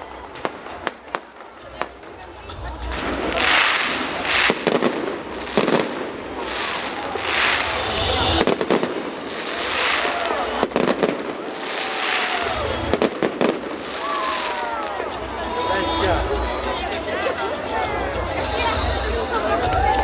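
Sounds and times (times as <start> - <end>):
fireworks banging: 0.1 - 15.9
fireworks hissing crackle: 0.1 - 16.4.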